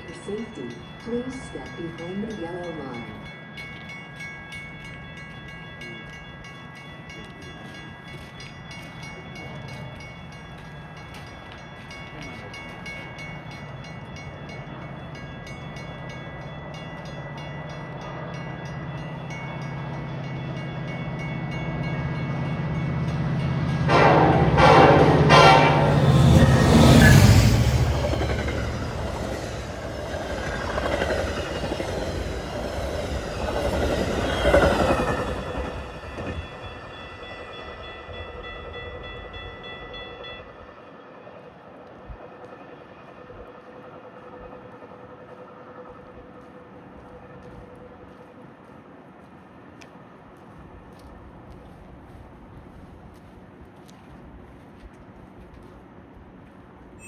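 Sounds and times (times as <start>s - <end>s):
diesel train rumbling past: 8.1s - 57.0s
train horn: 22.9s - 28.1s.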